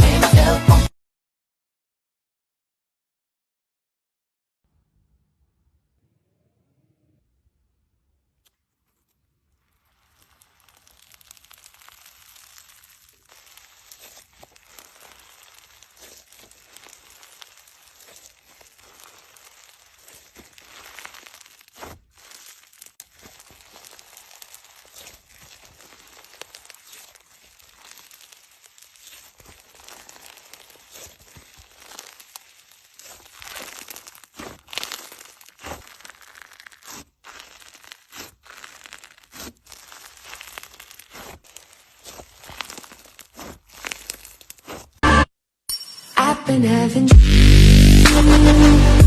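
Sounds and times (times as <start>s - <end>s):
material crackling and tearing: 8.4s - 45.1s
loud crunches: 8.4s - 45.3s.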